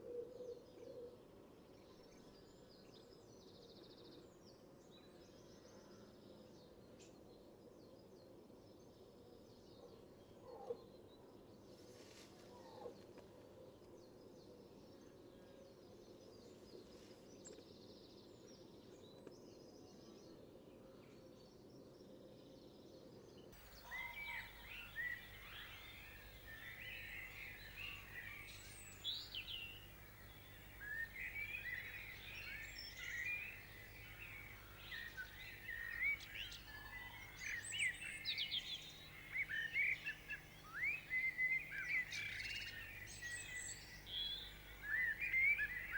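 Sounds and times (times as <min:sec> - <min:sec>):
faint background noise: 0:00.0 - 0:45.9
small birds chirping and singing: 0:21.2 - 0:45.9.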